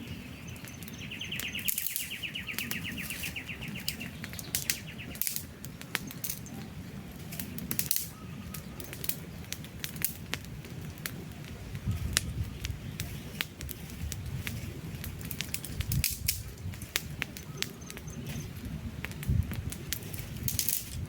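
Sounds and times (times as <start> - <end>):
bird trilling: 0.0 - 5.3
campfire crackling and popping: 0.0 - 21.0.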